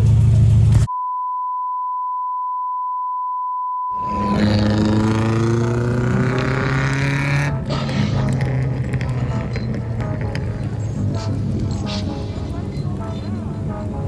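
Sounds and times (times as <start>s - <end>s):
car accelerating: 4.0s - 14.0s.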